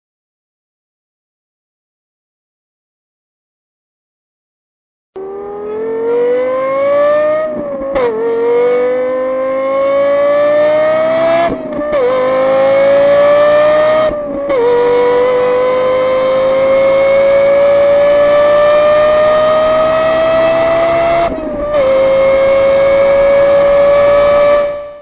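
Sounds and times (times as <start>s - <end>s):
car engine accelerating hard: 5.2s - 25.0s.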